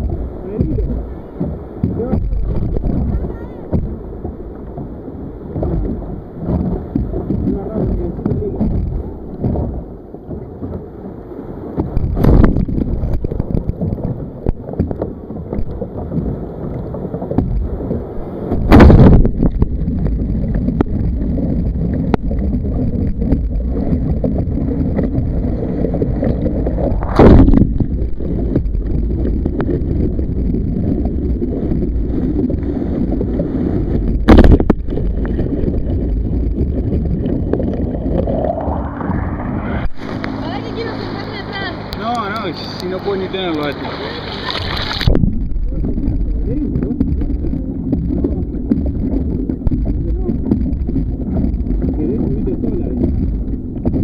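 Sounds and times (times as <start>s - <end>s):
heavy thumps: 0.0s - 10.8s, 18.5s - 32.6s, 33.9s - 40.4s
water sloshing around kayak: 0.0s - 54.0s
wind buffeting microphone: 0.0s - 54.0s.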